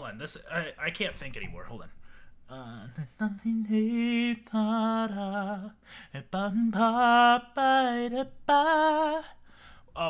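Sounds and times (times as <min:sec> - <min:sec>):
man singing: 0:02.5 - 0:10.0.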